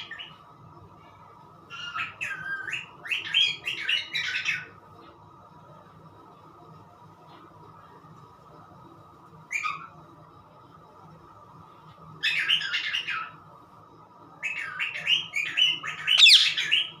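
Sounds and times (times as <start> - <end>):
parrot calling and chattering: 1.7 - 4.7, 12.2 - 13.4, 14.4 - 17.0
parrot whistle: 1.7 - 4.7.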